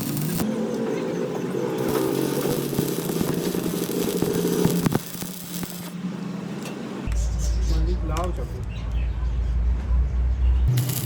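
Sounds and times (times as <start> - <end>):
machine running with crackle: 0.0 - 7.0, 10.7 - 11.0.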